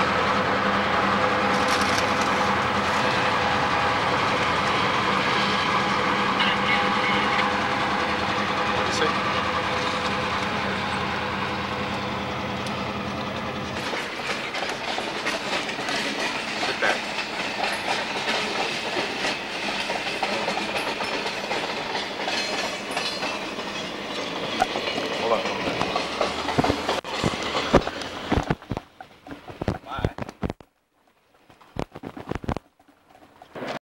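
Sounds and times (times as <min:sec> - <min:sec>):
diesel locomotive engine hum: 0:00.0 - 0:30.2
freight cars wheel clatter: 0:13.6 - 0:30.6.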